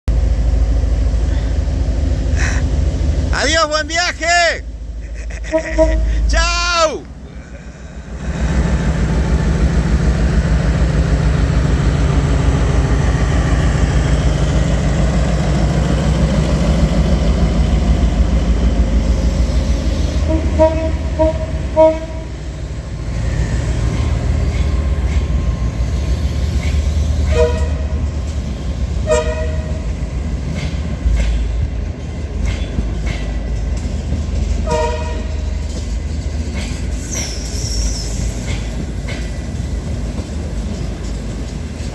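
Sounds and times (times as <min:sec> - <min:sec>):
diesel train engine and wheels: 0:00.0 - 0:41.9
train horn toots: 0:05.4 - 0:06.3, 0:20.2 - 0:22.4, 0:27.2 - 0:28.0, 0:29.0 - 0:29.8, 0:34.6 - 0:35.4.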